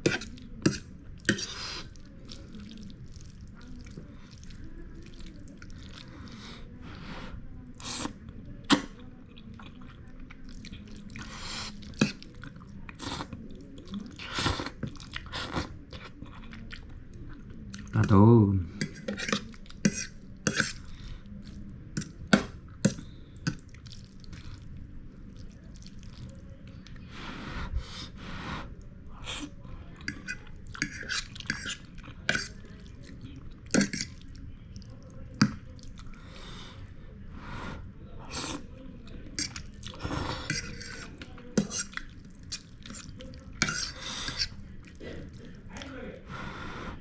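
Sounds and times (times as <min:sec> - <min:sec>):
close-up chewing noodles: 0:00.0 - 0:06.5, 0:09.2 - 0:18.0, 0:18.8 - 0:27.0, 0:29.1 - 0:36.9, 0:39.3 - 0:46.8.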